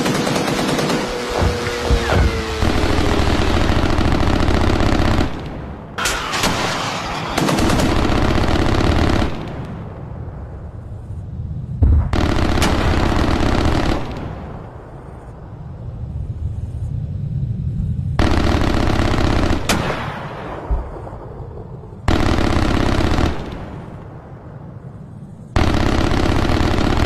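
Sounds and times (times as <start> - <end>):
rapid bursts of bangs: 0.0 - 5.4
heavy low thump: 1.3 - 2.6.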